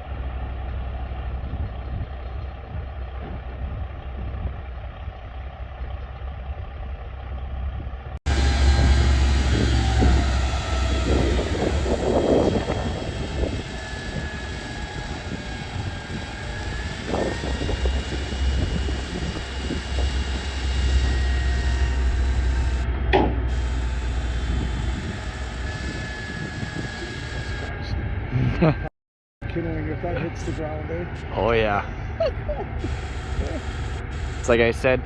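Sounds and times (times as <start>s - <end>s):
wind rumble on microphone: 7.8s - 28.7s
crane engine running with whine: 8.3s - 28.9s, 29.5s - 35.0s.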